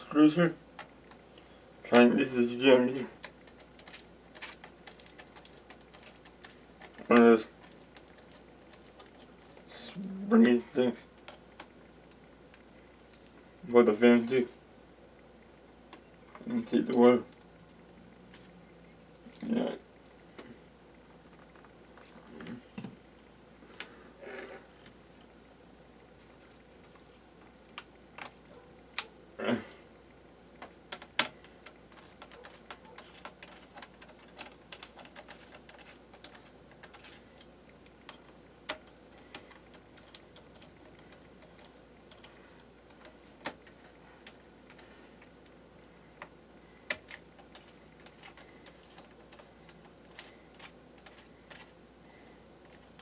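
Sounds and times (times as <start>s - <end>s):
laptop parts being handled: 3.2s - 9.7s, 30.5s - 53.0s.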